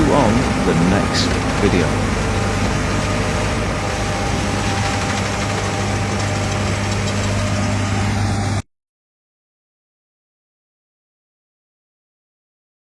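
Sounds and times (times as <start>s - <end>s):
steady high tones: 0.0s - 6.4s
combine harvester engine hum: 0.0s - 8.6s.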